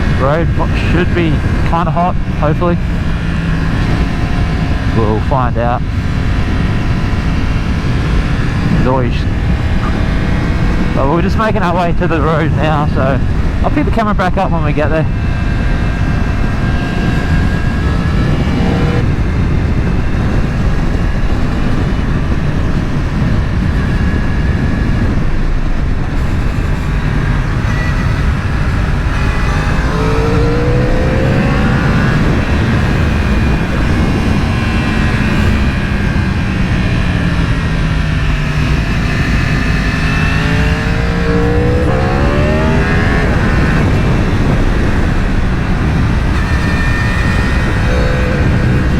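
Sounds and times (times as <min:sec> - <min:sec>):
motorcycle engine accelerating: 0:00.0 - 0:48.9
wind and road noise: 0:00.0 - 0:48.9.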